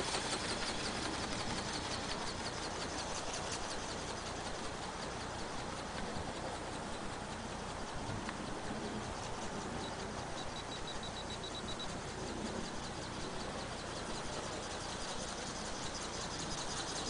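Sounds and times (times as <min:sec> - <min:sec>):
small motor and gearbox whirring: 0:00.0 - 0:17.0
wing strokes ticking: 0:00.0 - 0:17.0.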